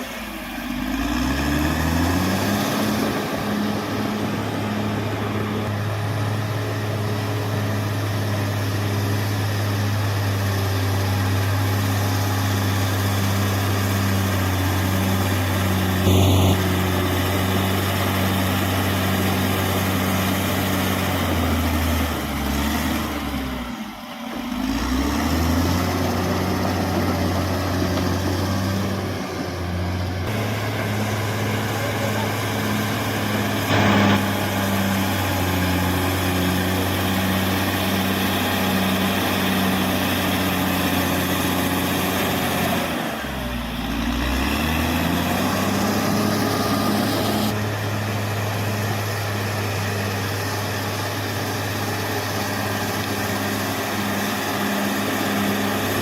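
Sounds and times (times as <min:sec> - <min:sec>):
bulldozer diesel engine running: 0:00.0 - 0:56.0
brief sharp sound: 0:16.0 - 0:16.7, 0:33.7 - 0:34.5.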